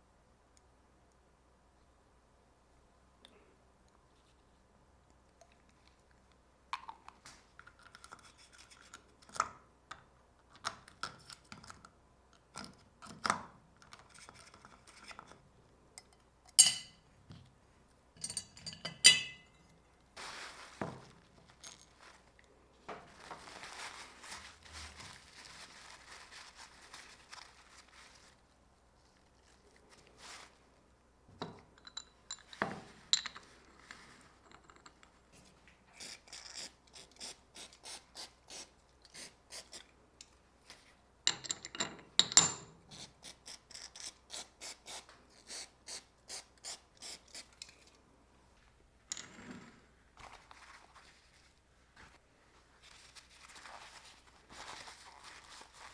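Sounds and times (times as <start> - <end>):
metal parts clinking and knocking: 18.2 - 19.5.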